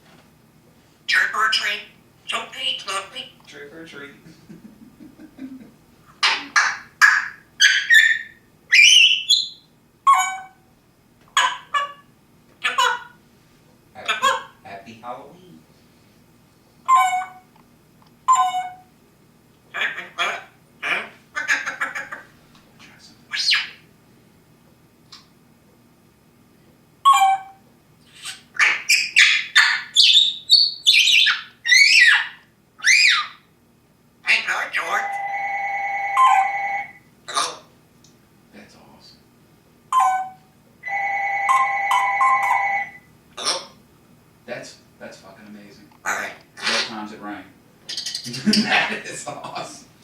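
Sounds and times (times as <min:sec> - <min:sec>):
parrot squawking and whistling: 0:01.1 - 0:03.1, 0:06.2 - 0:10.6, 0:16.9 - 0:17.5, 0:18.3 - 0:18.9, 0:19.8 - 0:22.3, 0:23.3 - 0:23.8, 0:27.0 - 0:33.5, 0:34.2 - 0:37.7, 0:39.9 - 0:43.8, 0:47.9 - 0:48.4.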